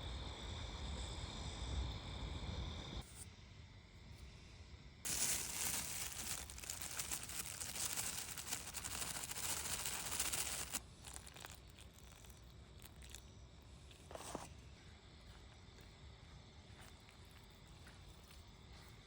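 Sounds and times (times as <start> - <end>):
plastic crinkling and rustling: 5.1 - 13.2.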